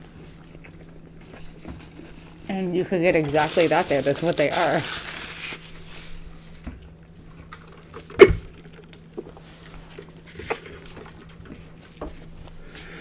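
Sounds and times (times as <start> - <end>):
chewing: 0.0 - 2.5.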